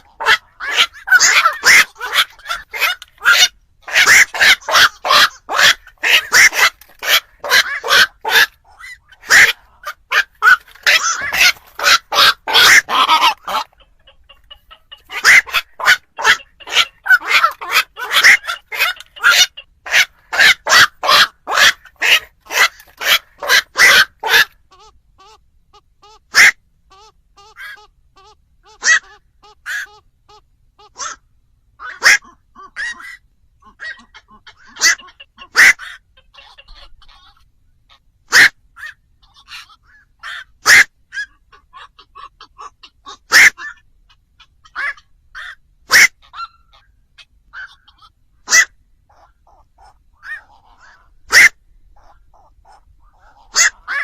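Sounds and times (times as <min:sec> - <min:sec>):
heron harsh croaks: 0:00.0 - 0:25.4, 0:31.8 - 0:37.4, 0:38.3 - 0:54.0.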